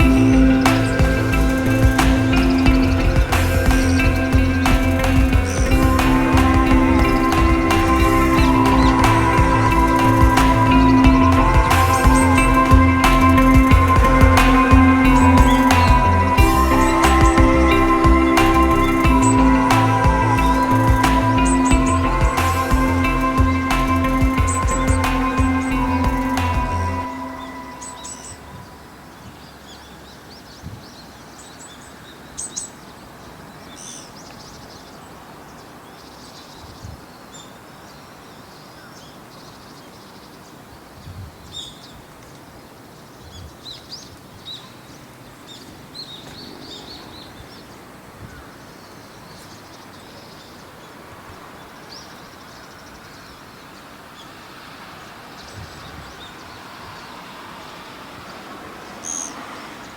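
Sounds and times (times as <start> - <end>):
soft low thumps: 0.0 - 27.0
small birds chirping: 0.0 - 59.9
steady outdoor hiss: 0.0 - 59.9.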